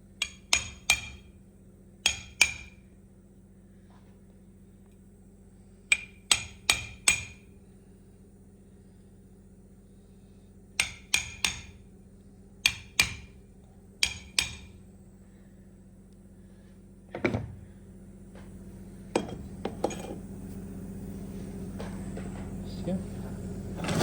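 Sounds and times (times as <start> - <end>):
hammer tapping on metal: 0.2 - 1.3, 2.0 - 2.8, 5.9 - 7.4, 10.8 - 11.8, 12.6 - 13.4, 14.0 - 14.8.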